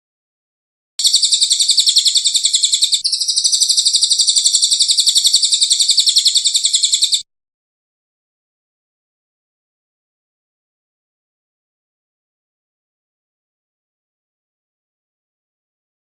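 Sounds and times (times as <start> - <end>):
bird rapid trill: 1.0 - 7.2.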